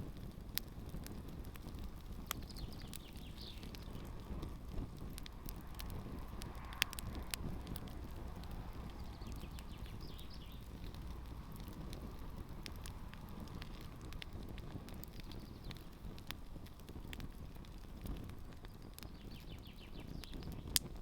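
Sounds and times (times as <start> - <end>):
campfire crackling and popping: 0.0 - 21.0
low rumble: 1.1 - 15.2.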